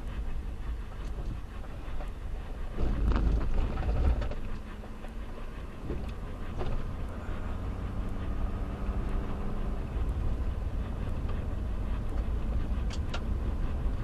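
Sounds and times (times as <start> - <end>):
vehicle road and motor noise: 0.0 - 14.0.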